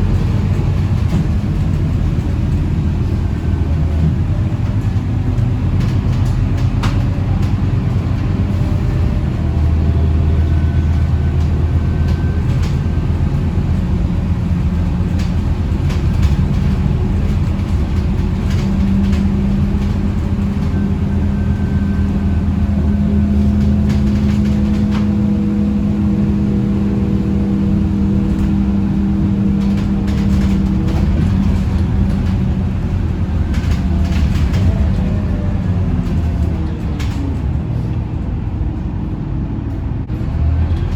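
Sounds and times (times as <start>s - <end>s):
bus engine drone: 0.0s - 40.9s
light rattles and clicks: 4.0s - 8.3s, 12.1s - 22.2s, 23.4s - 25.4s, 27.4s - 37.6s.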